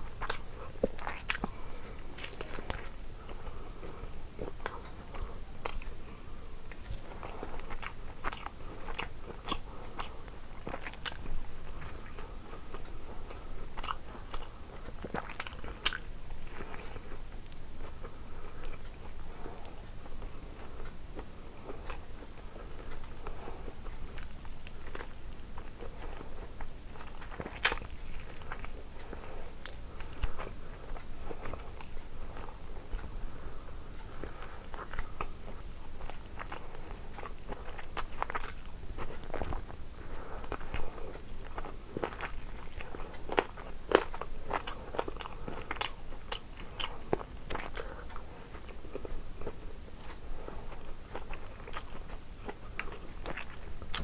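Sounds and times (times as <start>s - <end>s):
person chewing and crunching: 0.0s - 54.0s.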